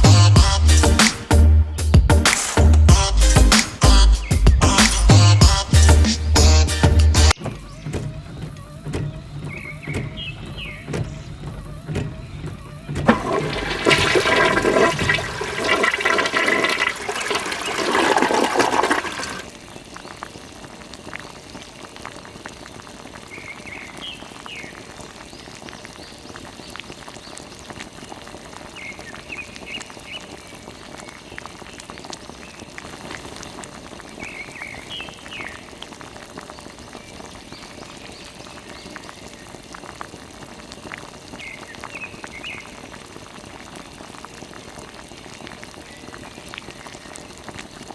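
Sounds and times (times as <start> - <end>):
pump whining: 7.3 - 19.5
water splashing from pump: 7.4 - 23.7.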